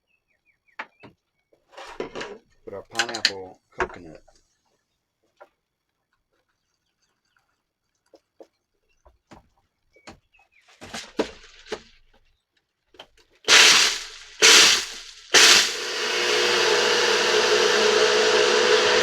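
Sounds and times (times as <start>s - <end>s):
blender crushing ice: 13.5s - 19.0s.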